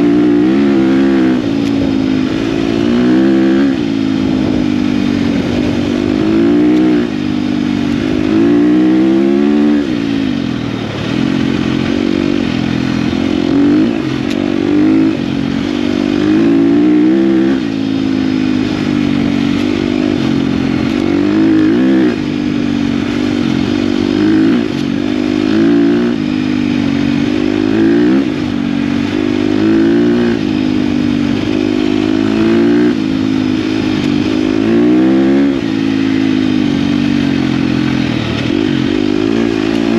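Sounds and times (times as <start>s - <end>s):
dirt bike engine running under load: 0.0s - 39.9s.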